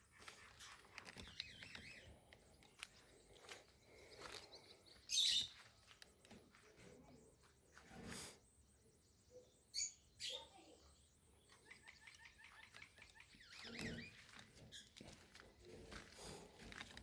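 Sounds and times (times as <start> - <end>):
faint bird chirps: 0.3 - 15.3.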